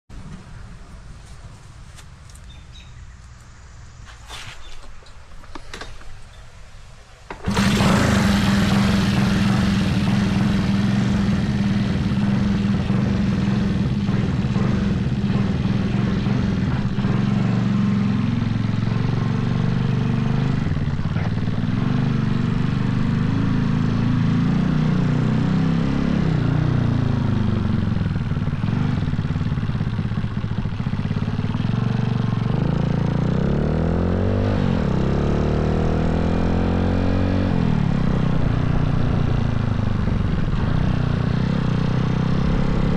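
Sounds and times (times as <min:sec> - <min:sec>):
minibike engine idling: 0:07.3 - 0:24.0, 0:26.9 - 0:33.4.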